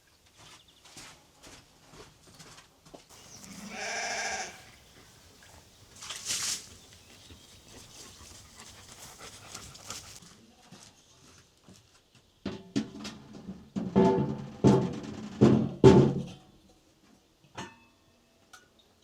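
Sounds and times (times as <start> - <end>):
sheep bleating: 3.1 - 6.0.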